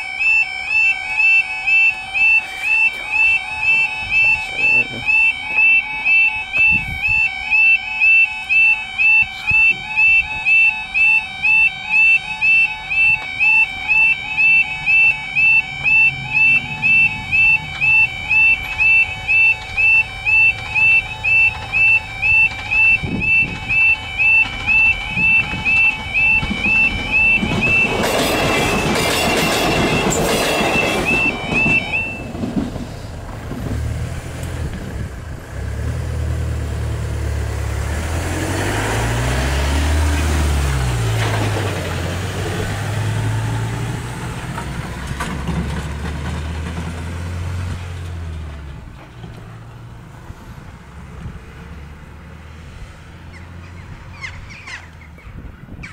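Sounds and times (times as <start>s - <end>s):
level crossing alarm warbling: 0.0s - 32.6s, 37.8s - 44.6s
train clattering over crossing: 0.0s - 52.4s
vehicle engine driving past: 32.3s - 48.7s.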